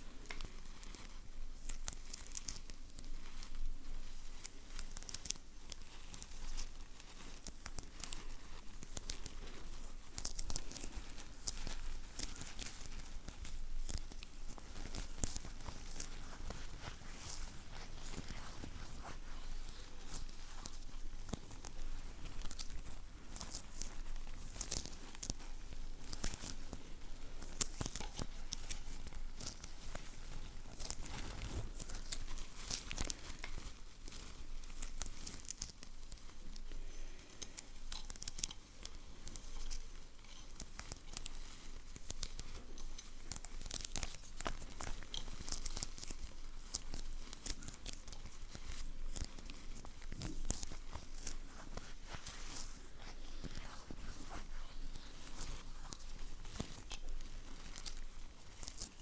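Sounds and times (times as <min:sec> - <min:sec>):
crinkly wrapping handled: 0:00.0 - 0:59.0
sticky material peeling: 0:04.4 - 0:59.0.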